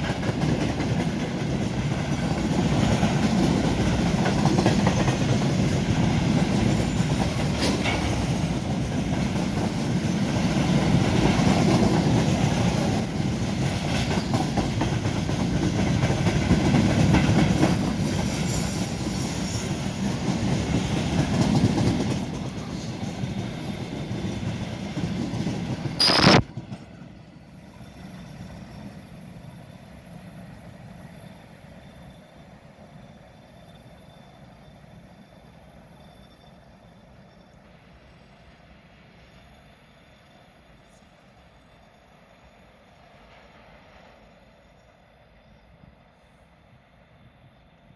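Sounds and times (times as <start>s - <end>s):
freight train wagons rumbling: 0.0s - 31.3s
wheels clickety-clack on rail joints: 0.0s - 34.2s.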